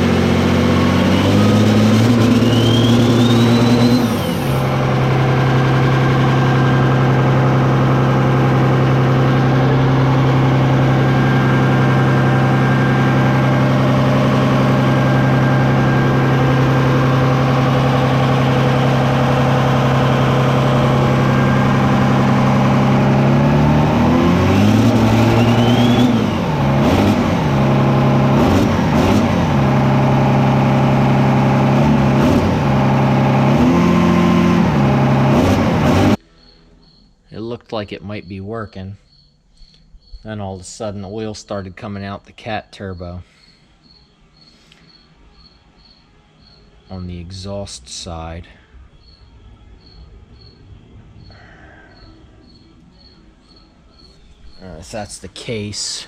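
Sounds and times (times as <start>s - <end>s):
diesel engine revving and idling: 0.0s - 36.5s, 46.4s - 56.0s
turbo whistle: 1.2s - 4.7s, 25.1s - 26.3s.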